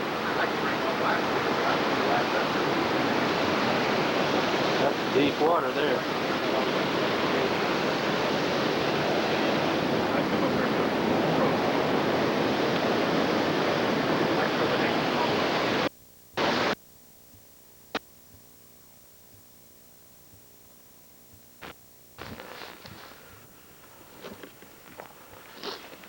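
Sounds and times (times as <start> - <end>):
creek water rushing: 0.0 - 16.8.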